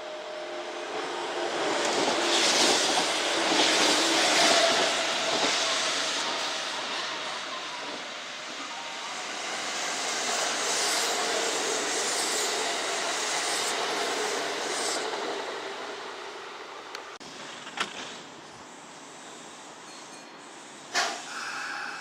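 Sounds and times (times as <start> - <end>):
electric train rushing past: 0.0 - 17.2, 20.7 - 22.0.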